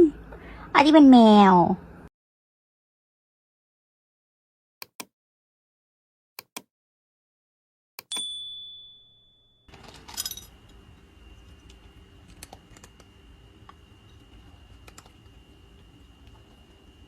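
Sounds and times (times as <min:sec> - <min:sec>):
bright high ding: 0:08.1 - 0:09.7
clink: 0:08.1 - 0:10.6.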